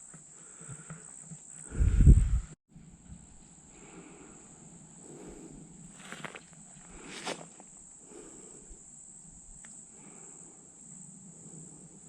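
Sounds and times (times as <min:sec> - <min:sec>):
rustles of movement: 0:00.7 - 0:08.8
high-pitched insect chorus: 0:03.2 - 0:12.0
footstep in dry leaves: 0:05.9 - 0:07.7.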